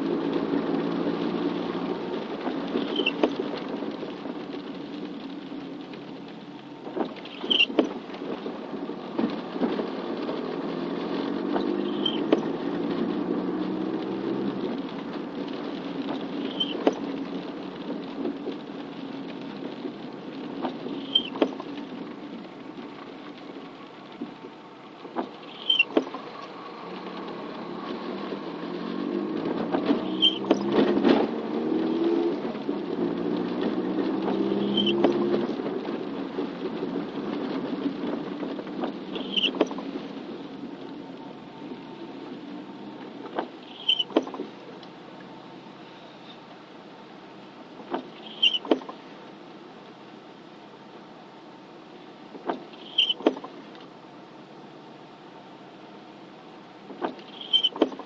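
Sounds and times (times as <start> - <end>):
light rain: 0.0 - 58.0
short squeak and click: 2.8 - 3.3, 7.3 - 7.9, 11.8 - 12.4, 16.5 - 17.0, 21.0 - 21.5, 25.5 - 26.1, 30.0 - 30.6, 34.6 - 35.2, 39.2 - 39.8, 43.6 - 44.4, 48.1 - 48.9, 52.8 - 53.5, 57.0 - 58.0
car engine accelerating: 10.0 - 17.8, 26.3 - 40.8.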